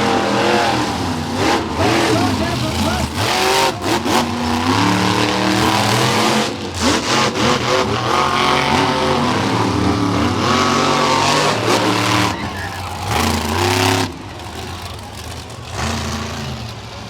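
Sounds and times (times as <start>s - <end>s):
monster truck engines revving: 0.0s - 17.0s.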